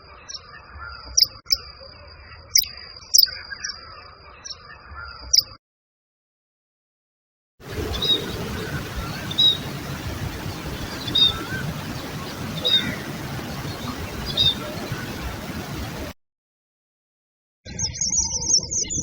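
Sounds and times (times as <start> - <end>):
bird chirping: 2.3 - 5.6, 7.7 - 15.8, 17.7 - 19.0
outdoor background hiss: 7.6 - 16.2.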